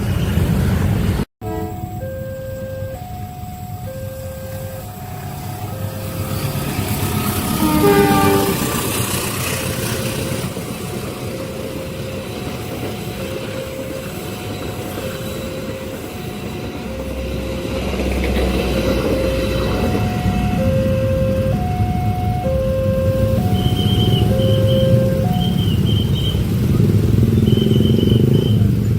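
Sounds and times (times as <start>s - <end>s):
train rumbling past: 0.0s - 28.9s
train horn blast: 1.4s - 1.8s, 5.7s - 9.0s.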